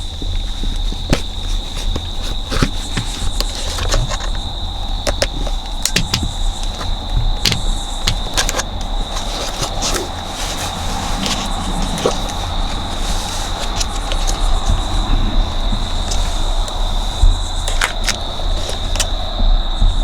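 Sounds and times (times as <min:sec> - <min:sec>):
plastic clicks and knocks: 0:01.0 - 0:10.3
low rumble: 0:10.2 - 0:20.0.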